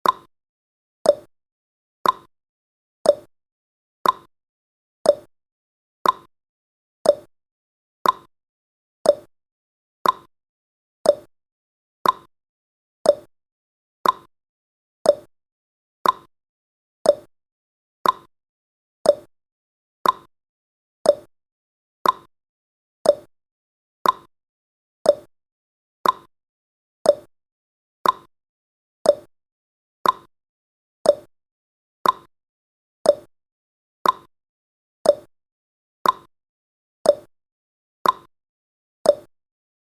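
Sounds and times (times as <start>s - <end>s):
clock ticking: 2.0s - 2.3s, 4.0s - 4.3s, 6.0s - 6.3s, 8.0s - 8.3s, 10.0s - 10.3s, 12.0s - 12.3s, 14.0s - 14.3s, 18.0s - 18.3s, 20.0s - 20.3s, 22.0s - 22.3s, 24.0s - 24.3s, 26.0s - 26.3s, 28.0s - 28.3s, 29.1s - 29.3s, 30.0s - 30.3s, 31.1s - 31.3s, 32.0s - 32.3s, 33.1s - 33.3s, 34.0s - 34.3s, 35.1s - 35.3s, 36.0s - 36.3s, 38.0s - 38.3s, 39.1s - 39.3s.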